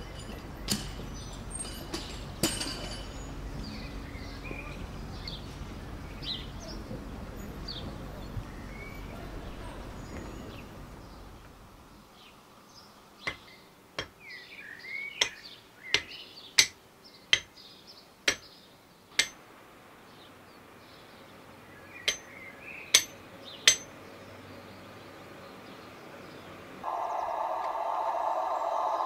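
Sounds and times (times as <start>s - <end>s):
small birds chirping: 0.0s - 29.0s
sharp knocks: 19.2s - 19.4s.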